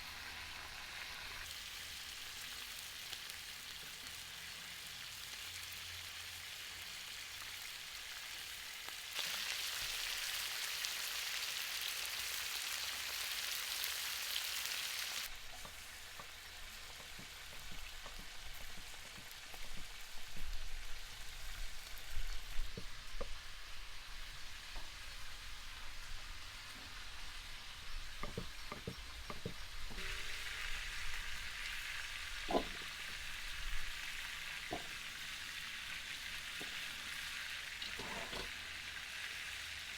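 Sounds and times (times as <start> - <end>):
food sizzling in frying: 0.0 - 39.9.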